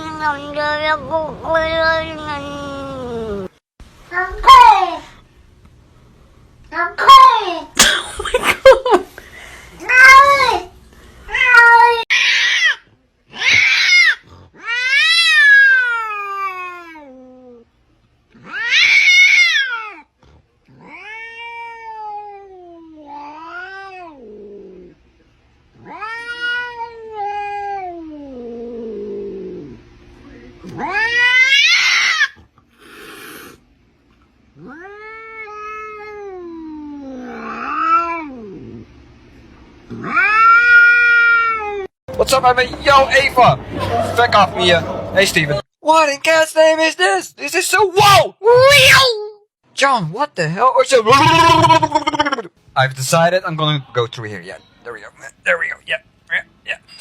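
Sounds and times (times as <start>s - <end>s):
cat meowing: 25.8s - 28.5s, 30.6s - 33.6s.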